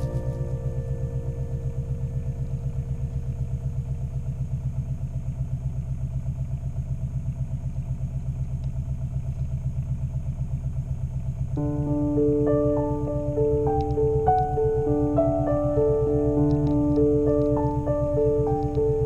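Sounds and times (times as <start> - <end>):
boat engine running: 0.0 - 8.2.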